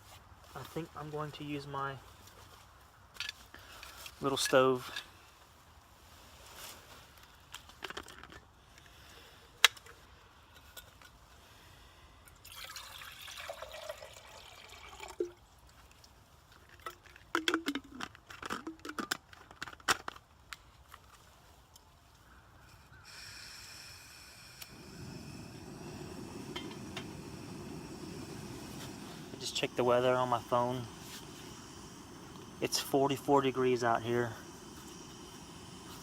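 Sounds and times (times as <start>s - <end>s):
steady hiss: 0.0s - 2.3s, 3.4s - 7.6s, 22.2s - 36.0s
water pouring into a pot: 12.4s - 15.4s.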